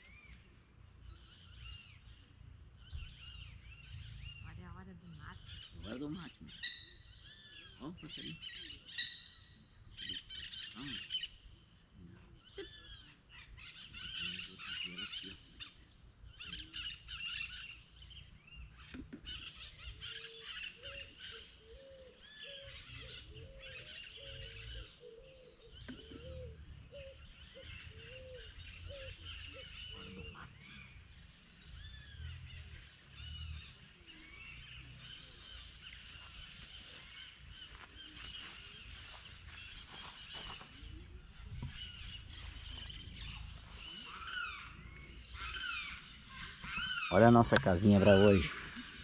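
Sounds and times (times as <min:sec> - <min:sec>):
small birds chirping: 0:00.0 - 0:49.0
bird call rising and falling: 0:31.6 - 0:49.0.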